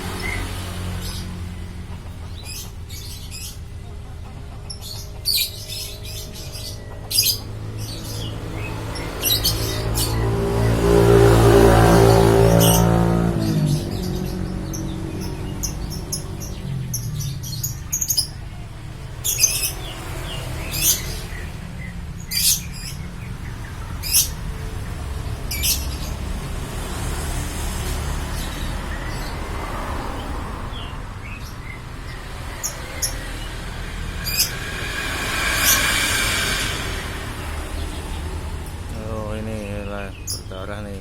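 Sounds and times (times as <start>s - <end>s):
lovebirds chirping: 0.0s - 10.8s, 12.5s - 26.4s, 28.2s - 41.0s
steady low rumble: 31.1s - 39.4s.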